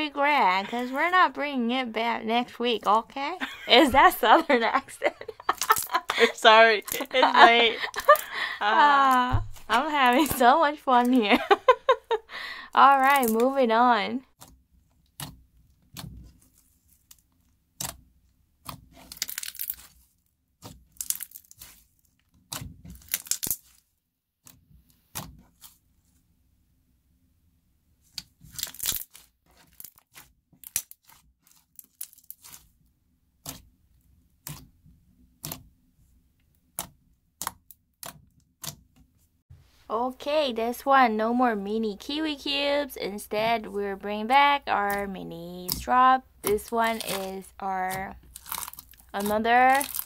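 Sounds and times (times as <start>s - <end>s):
slime squeezed and stretched: 15.2s - 23.9s, 28.0s - 32.8s, 48.2s - 50.0s.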